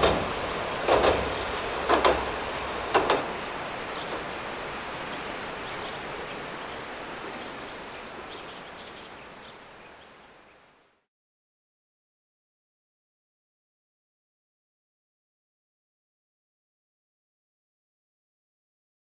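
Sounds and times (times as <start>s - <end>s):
train wheels clacking over rail joints: 0.0s - 5.2s.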